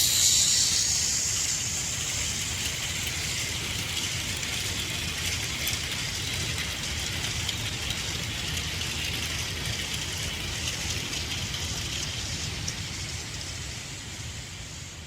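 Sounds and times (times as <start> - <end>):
small motor whirring: 0.0 - 3.7
plastic wheels rattling and clicking: 2.2 - 12.8.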